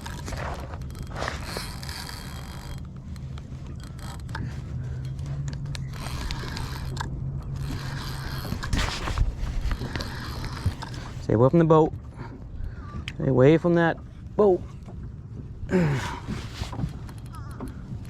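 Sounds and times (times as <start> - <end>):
fishing reel clicking and grinding: 0.0 - 8.8, 9.7 - 11.0
low hum: 0.0 - 18.0.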